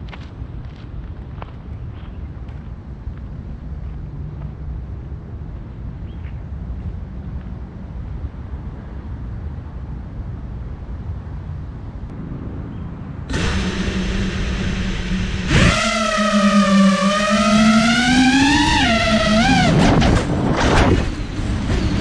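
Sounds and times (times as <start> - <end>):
low wind rumble: 0.0 - 22.0
quadcopter motors whining: 13.3 - 22.0.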